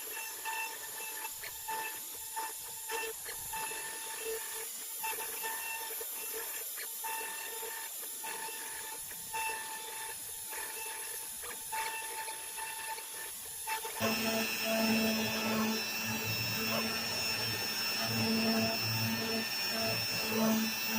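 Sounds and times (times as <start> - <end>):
router spindle whining: 13.7 - 20.9
lower machine hum: 14.0 - 20.9.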